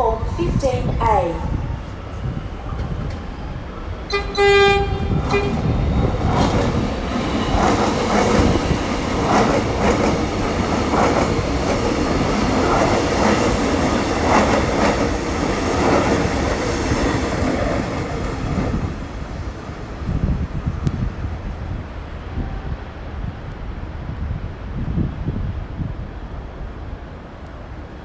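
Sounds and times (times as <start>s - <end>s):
electric train rumbling past: 0.0s - 28.0s
wheels clacking over rail joints: 2.6s - 18.8s.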